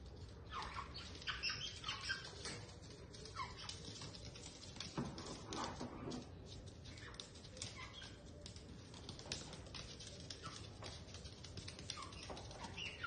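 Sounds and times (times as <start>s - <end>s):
parrot chirping and calling: 0.4s - 2.4s.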